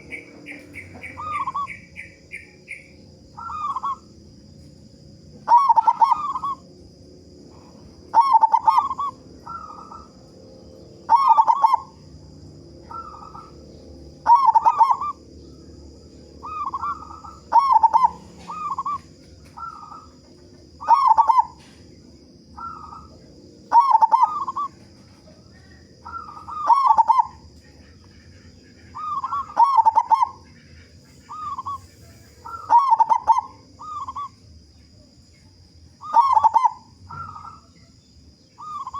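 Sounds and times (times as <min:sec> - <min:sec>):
dove cooing: 0:00.0 - 0:04.2, 0:05.4 - 0:06.8, 0:07.5 - 0:34.4, 0:36.0 - 0:37.9, 0:38.6 - 0:38.9.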